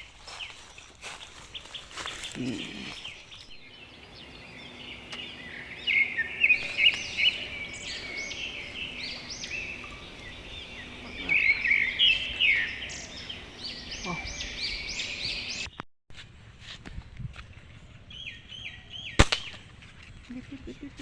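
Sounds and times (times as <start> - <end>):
small birds chirping: 0.0 - 15.8, 16.9 - 21.0.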